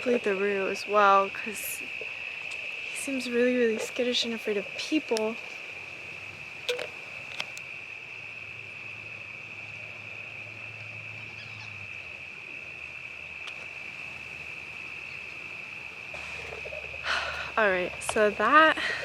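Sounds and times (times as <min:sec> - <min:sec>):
insects trilling: 0:00.0 - 0:19.0
faint clicks: 0:01.5 - 0:05.6, 0:13.4 - 0:13.8.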